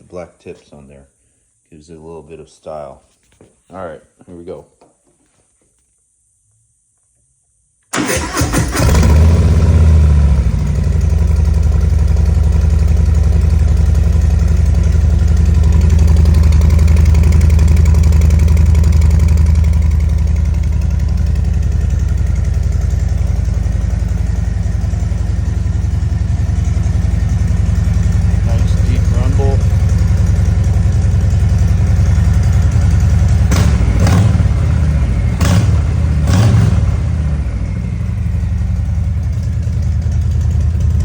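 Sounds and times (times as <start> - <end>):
motorcycle engine starting: 7.9 - 41.0
motorcycle engine idling: 8.9 - 41.0.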